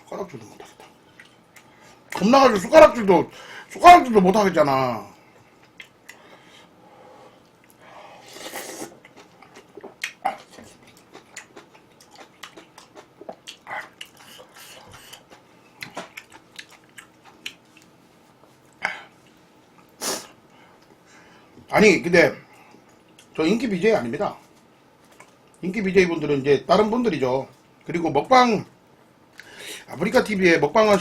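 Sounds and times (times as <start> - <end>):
chewing and biting food: 5.6 - 6.2, 8.5 - 18.0.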